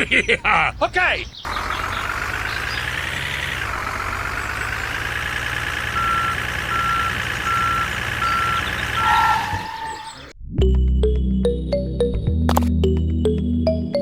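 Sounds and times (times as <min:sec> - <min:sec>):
truck engine running: 0:01.2 - 0:10.3
reversing alarm beeps: 0:05.2 - 0:10.3.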